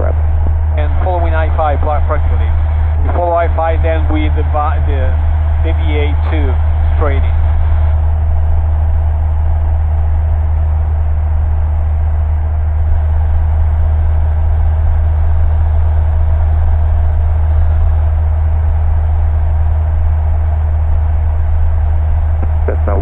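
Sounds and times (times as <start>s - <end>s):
airplane engine and propeller drone: 0.0s - 23.0s.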